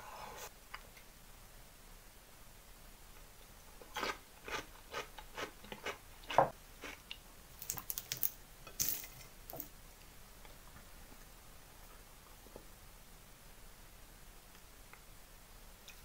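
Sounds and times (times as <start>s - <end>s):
crunchy chewing of cucumber: 3.9s - 7.1s.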